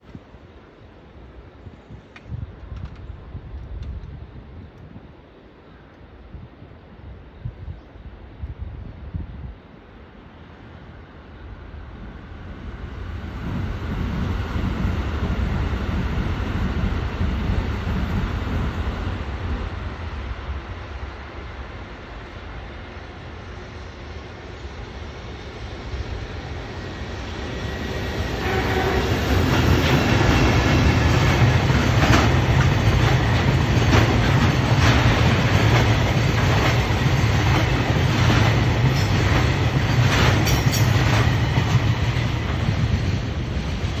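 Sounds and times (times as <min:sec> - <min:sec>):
freight train rumble: 0:00.0 - 0:44.0
wheels clacking over rail joints: 0:28.4 - 0:44.0.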